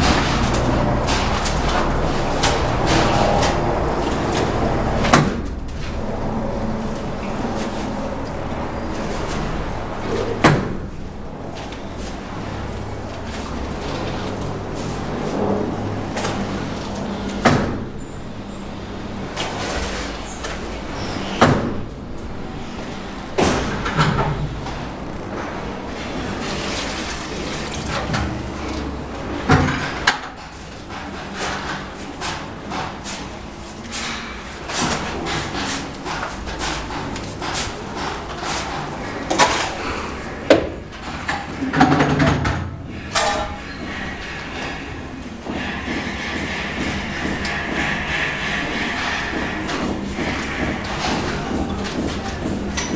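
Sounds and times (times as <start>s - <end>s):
tools scraping and knocking mortar: 30.9s - 52.9s.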